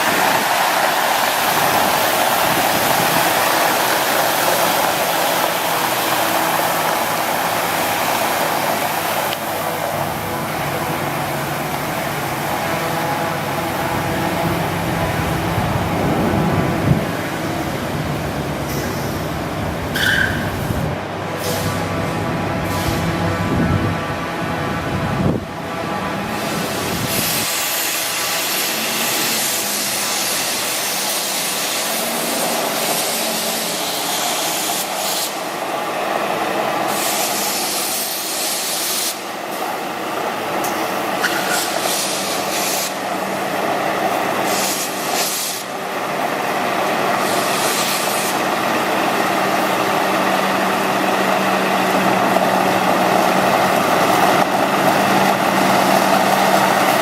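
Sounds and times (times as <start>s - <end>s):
diesel engine humming: 0.0s - 37.0s, 45.7s - 57.0s
water hissing from spray heads: 26.3s - 35.6s, 36.9s - 39.3s, 40.6s - 43.4s, 44.4s - 45.8s, 47.1s - 52.0s.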